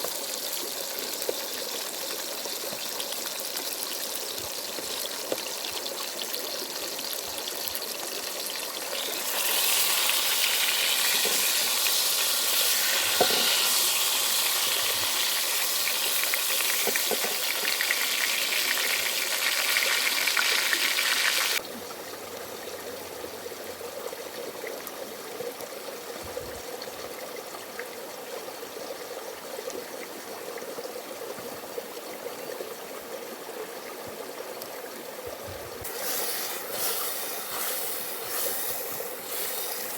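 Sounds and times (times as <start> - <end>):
ingredients sizzling in a pan: 0.0 - 21.6, 35.8 - 39.9.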